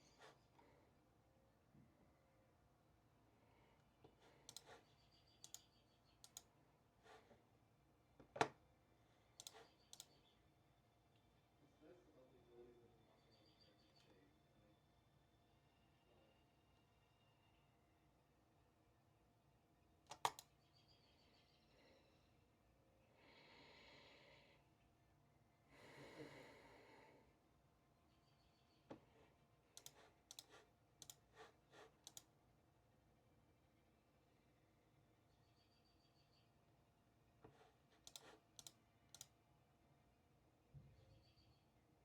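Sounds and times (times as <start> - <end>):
sharp clicks: 5.4 - 6.5, 9.4 - 10.2, 20.1 - 20.5, 38.0 - 39.3.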